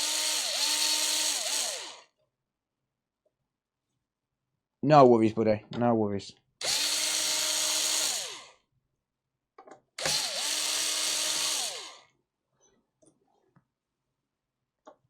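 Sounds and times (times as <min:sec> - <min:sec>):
electric screwdriver running: 0:00.0 - 0:02.1, 0:06.6 - 0:08.5, 0:10.0 - 0:12.1.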